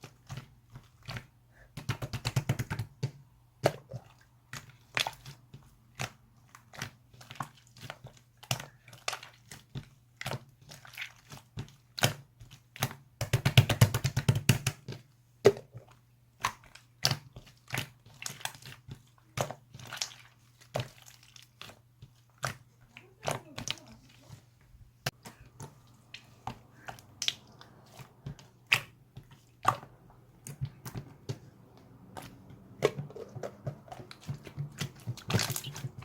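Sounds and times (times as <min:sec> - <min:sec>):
slime squished by hand: 0:25.0 - 0:36.0.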